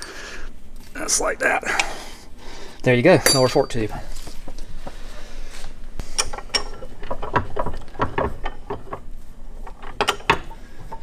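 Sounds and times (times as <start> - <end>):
metallic clicks and knocks of parts: 6.1 - 11.0.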